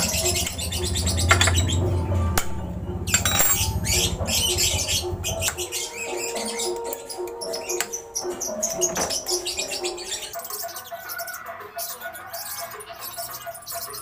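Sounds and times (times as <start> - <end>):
birds chirping and squawking: 0.0 - 14.0
hand tools clicking: 2.4 - 4.0.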